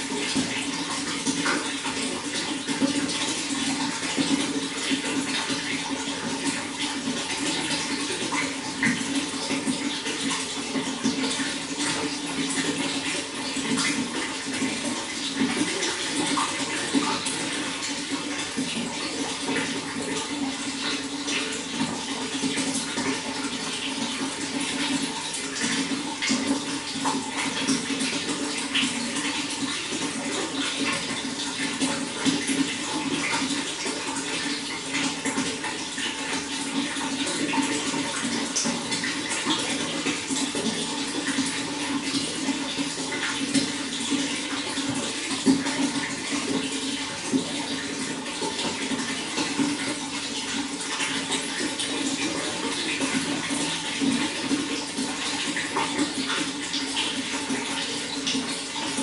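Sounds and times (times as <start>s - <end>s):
running water splashing: 0.0s - 59.0s.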